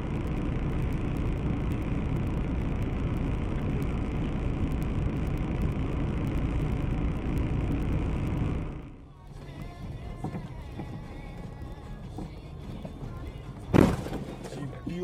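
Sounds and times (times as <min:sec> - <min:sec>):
car engine rumble: 0:00.0 - 0:15.0.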